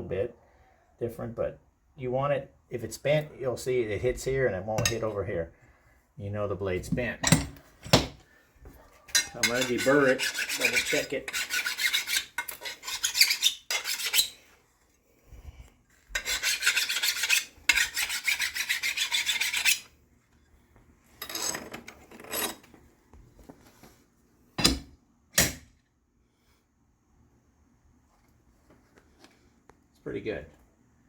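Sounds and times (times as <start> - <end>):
file rasping on steel blade: 9.2 - 14.4, 16.2 - 19.9.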